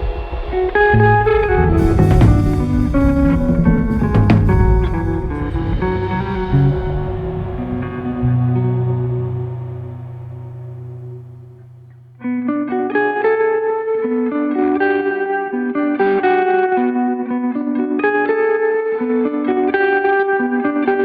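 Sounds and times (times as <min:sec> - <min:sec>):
plucked electric guitar: 0:00.0 - 0:21.0
low ambient tone: 0:00.8 - 0:12.4.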